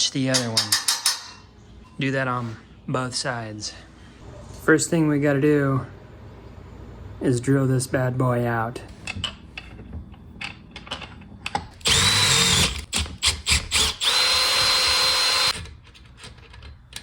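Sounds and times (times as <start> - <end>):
power drill whining: 11.8 - 12.8, 13.4 - 15.6.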